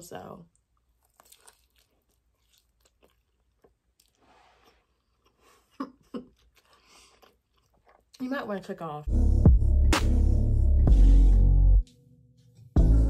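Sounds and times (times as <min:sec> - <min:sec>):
chewing and mouth smacking: 0:00.6 - 0:08.2
crunching: 0:00.8 - 0:05.4.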